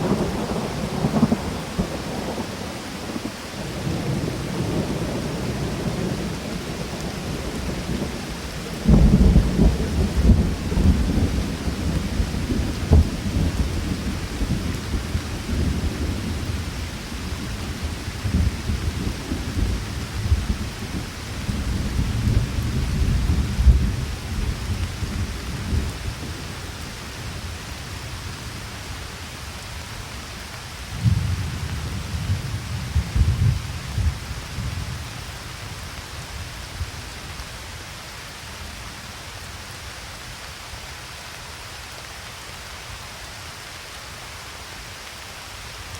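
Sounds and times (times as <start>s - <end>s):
rolling thunder: 0.0s - 28.6s, 30.9s - 35.2s
steady rain hiss: 0.0s - 45.9s.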